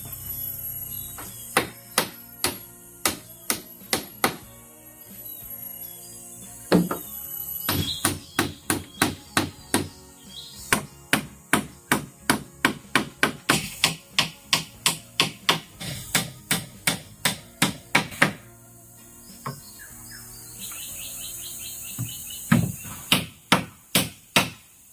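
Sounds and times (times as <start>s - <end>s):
tool striking bamboo: 1.5s - 4.5s, 7.7s - 10.0s, 10.7s - 18.4s, 22.0s - 24.7s.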